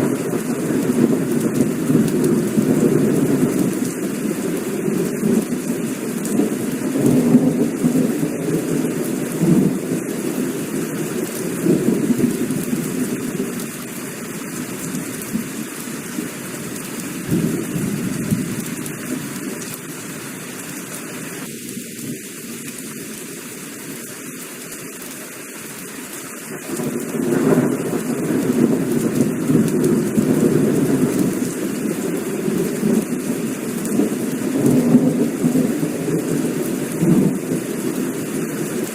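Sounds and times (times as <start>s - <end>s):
rolling thunder: 0.0s - 13.8s, 17.2s - 19.2s, 26.6s - 38.9s
heavy rain falling: 0.0s - 38.9s.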